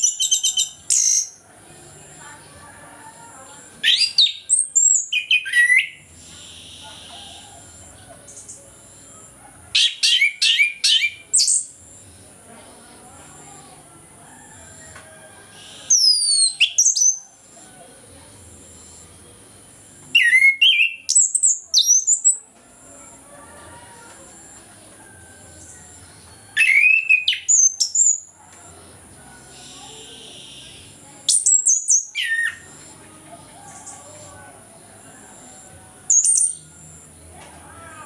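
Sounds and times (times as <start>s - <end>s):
thrush singing whistled notes: 3.7s - 9.1s, 9.8s - 11.8s, 15.6s - 17.4s, 19.7s - 22.4s, 26.0s - 28.3s, 29.6s - 33.0s, 35.3s - 37.2s.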